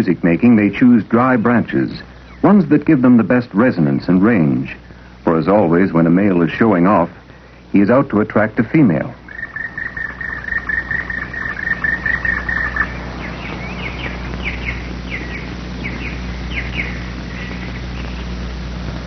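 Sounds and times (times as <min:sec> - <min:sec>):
steady low hum: 0:00.0 - 0:19.0
woodpecker calling: 0:09.1 - 0:18.4.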